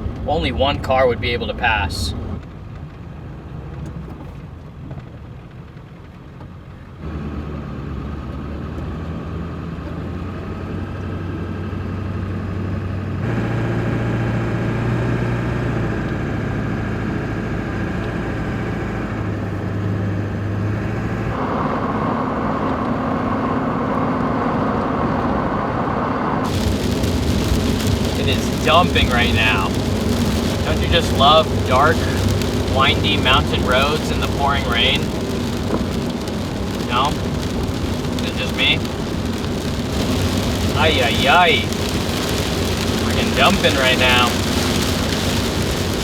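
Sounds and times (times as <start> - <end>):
truck engine and road noise: 0.0 - 46.0
heavy rain hissing: 26.4 - 46.0.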